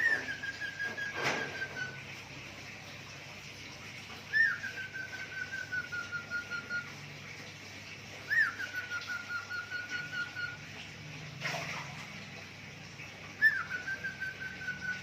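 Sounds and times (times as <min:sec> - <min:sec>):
cockatiel whistling: 0:00.0 - 0:02.0, 0:04.3 - 0:06.9, 0:08.3 - 0:10.6, 0:13.4 - 0:15.0.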